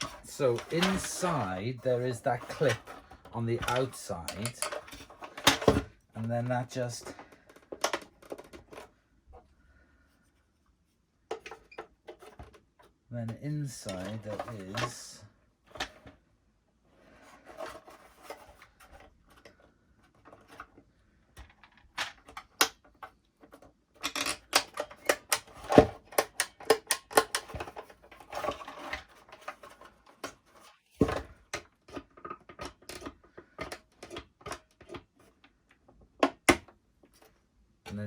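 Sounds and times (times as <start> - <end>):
plastic clicks taps and scraping: 2.4 - 5.8, 21.4 - 38.0.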